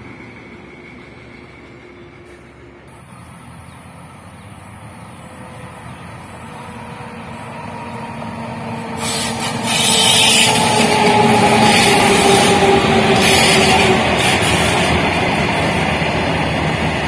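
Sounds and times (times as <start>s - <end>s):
electric locomotive humming: 0.0s - 17.0s
loud hissing rush: 8.6s - 17.0s.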